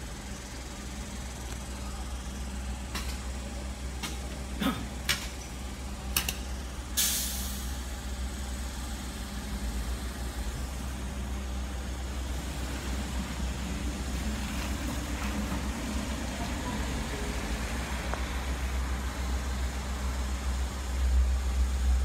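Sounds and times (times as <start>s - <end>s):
train rumble: 2.8s - 22.0s
air hiss burst: 7.0s - 7.8s.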